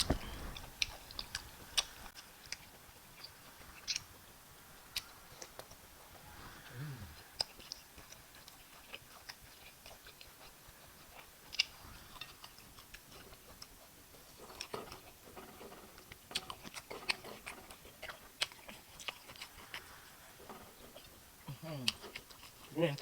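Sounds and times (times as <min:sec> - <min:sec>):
wet smacks and clicks: 0:00.0 - 0:04.3
mouth chewing food: 0:00.0 - 0:23.0.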